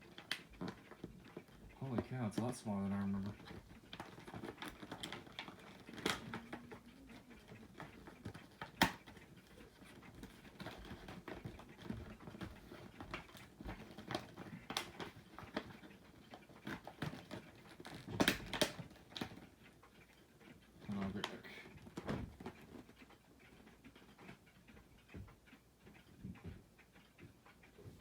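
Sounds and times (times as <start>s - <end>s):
toy packaging clicks and taps: 0.0s - 19.5s.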